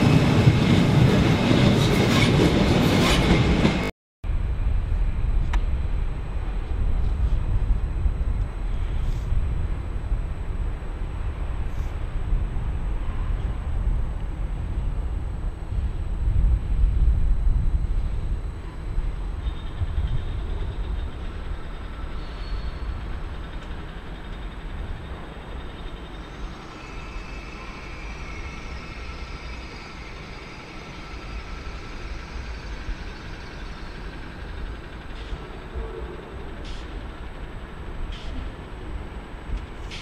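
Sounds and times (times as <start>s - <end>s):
train rumbling: 0.0s - 40.0s
high squeal: 21.9s - 23.2s, 25.7s - 34.7s.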